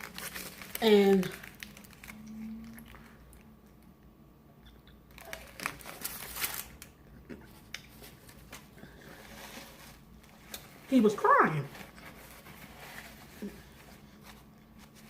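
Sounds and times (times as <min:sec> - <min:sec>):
eating crunches: 0:00.0 - 0:03.8.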